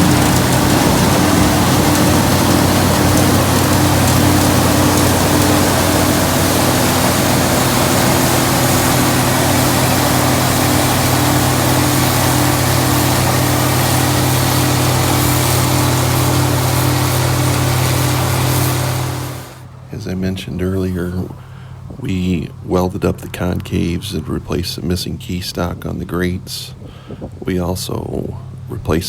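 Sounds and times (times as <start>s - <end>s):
machinery rush: 0.0s - 20.1s
combine harvester engine hum: 0.0s - 25.2s.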